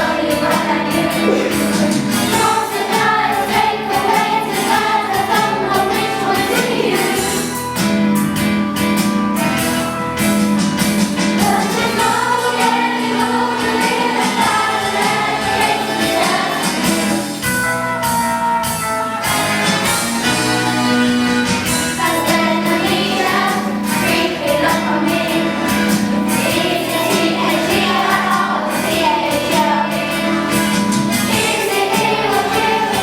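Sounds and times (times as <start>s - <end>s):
choir singing: 0.0s - 7.7s, 11.2s - 17.4s, 21.9s - 33.0s.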